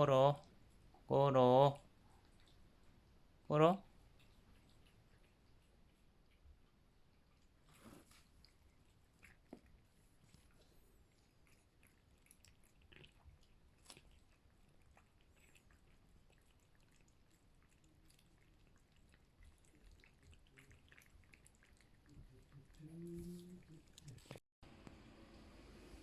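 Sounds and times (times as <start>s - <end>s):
cats chewing food: 1.8s - 24.4s.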